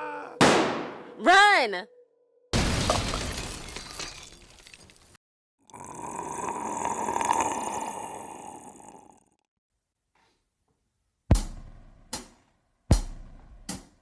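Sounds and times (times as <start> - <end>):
loud crash with shattering: 2.6 - 5.2.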